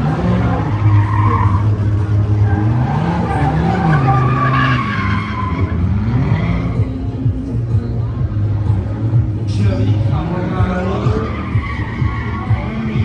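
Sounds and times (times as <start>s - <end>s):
tyres squealing and skidding: 0.0s - 7.2s, 10.5s - 13.0s
car engine revving: 0.0s - 13.0s.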